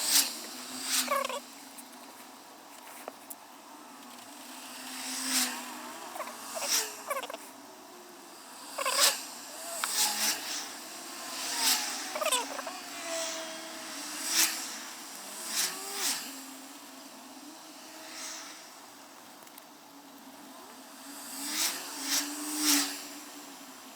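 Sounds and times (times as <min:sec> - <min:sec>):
sped-up cars whooshing past: 0:03.7 - 0:19.2, 0:20.8 - 0:23.9.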